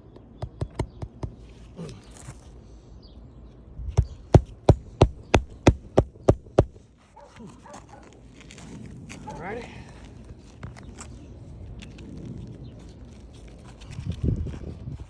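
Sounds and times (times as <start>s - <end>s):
hammer driving nail: 0.4s - 1.3s, 4.0s - 6.8s.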